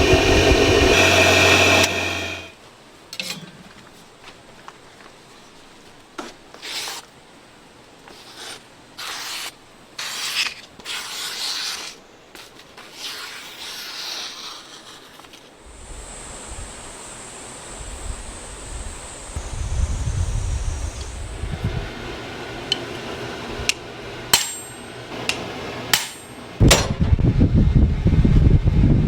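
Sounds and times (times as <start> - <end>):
sanding strokes on workpiece: 0.0 - 2.5, 8.1 - 12.0, 12.8 - 15.4
steady low rumble: 0.0 - 2.5, 15.6 - 22.6
thin high whine: 0.0 - 2.6, 15.6 - 23.8.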